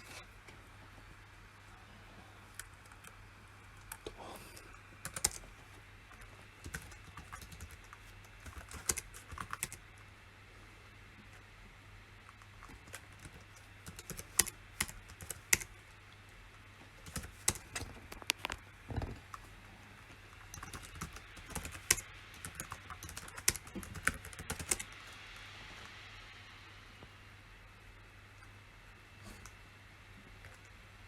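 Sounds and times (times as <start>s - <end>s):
steady low hum: 0.0s - 31.0s
computer keyboard typing: 3.8s - 9.9s, 12.3s - 15.8s, 17.0s - 19.5s, 20.3s - 25.0s.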